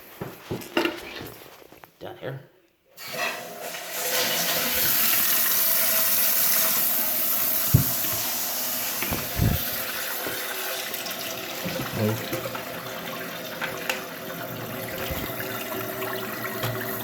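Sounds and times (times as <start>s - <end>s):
toilet fill valve hissing: 3.0s - 17.0s
dull thumps: 7.7s - 8.3s, 9.0s - 9.8s.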